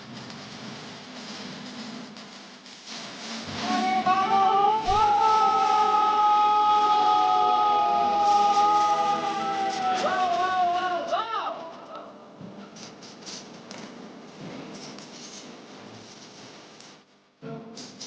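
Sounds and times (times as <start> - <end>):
music: 0.0 - 18.0
person singing: 3.5 - 12.1.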